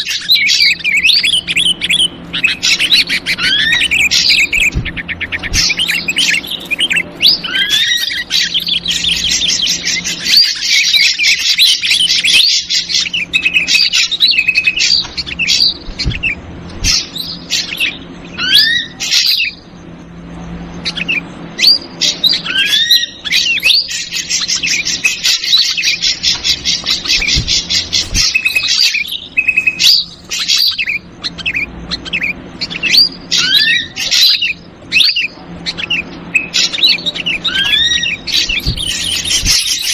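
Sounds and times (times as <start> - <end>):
birds chirping and whistling: 0.0 - 39.9.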